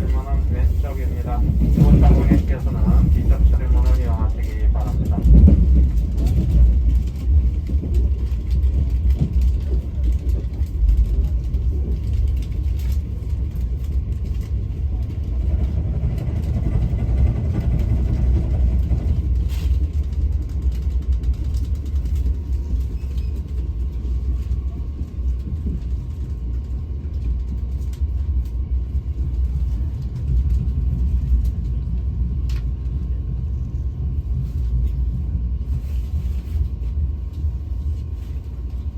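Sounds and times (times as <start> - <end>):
train rumbling on rails: 0.0 - 38.9.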